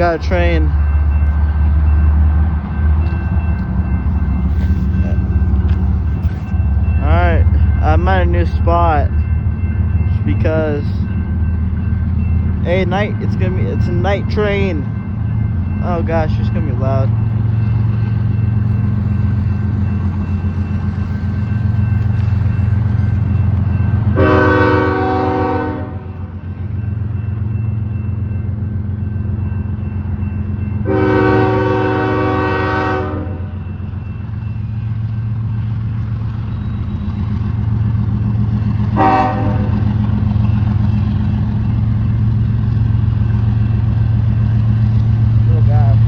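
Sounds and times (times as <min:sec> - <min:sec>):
low train rumble: 0:00.0 - 0:46.0
train horn blasts: 0:24.1 - 0:26.1, 0:30.8 - 0:33.6, 0:38.9 - 0:39.8.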